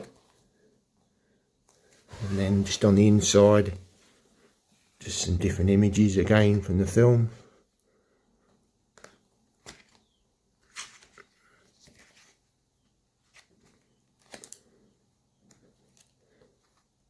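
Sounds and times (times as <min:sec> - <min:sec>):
paper pages rustling: 0:08.9 - 0:17.0.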